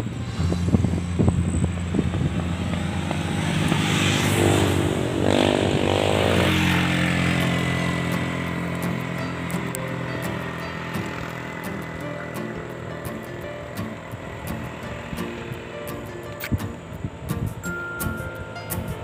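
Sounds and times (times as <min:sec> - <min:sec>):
motorcycle engine running: 0:00.0 - 0:19.0
rush of noise: 0:00.0 - 0:19.0.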